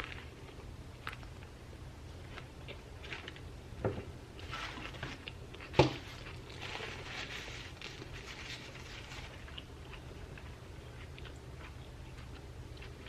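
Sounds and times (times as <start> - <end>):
sandwich chewing: 4.4 - 13.0.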